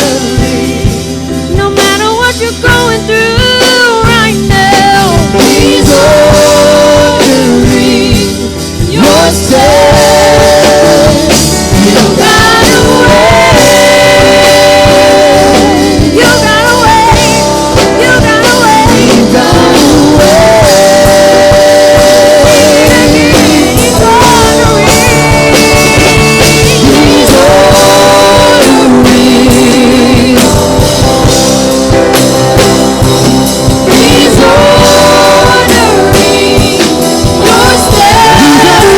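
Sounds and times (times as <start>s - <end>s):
worship band playing slow song: 0.0s - 38.9s.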